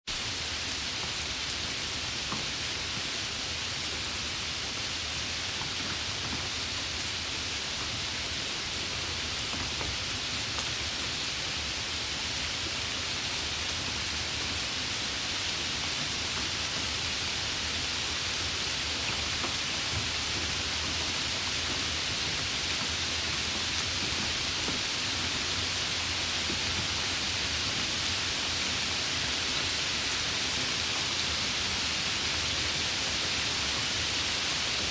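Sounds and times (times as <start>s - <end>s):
rain hissing: 0.1s - 34.9s.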